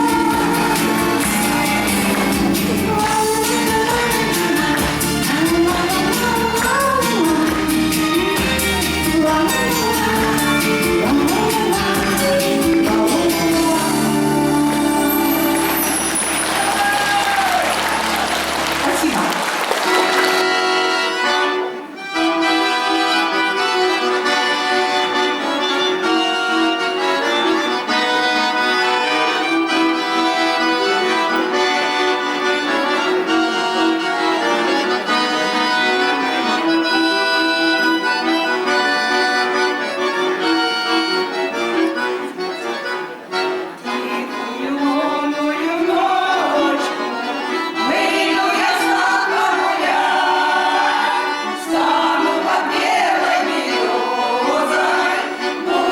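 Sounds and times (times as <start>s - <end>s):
voices singing: 0.0s - 19.1s, 43.8s - 55.9s
accordion folk melody: 0.0s - 55.9s.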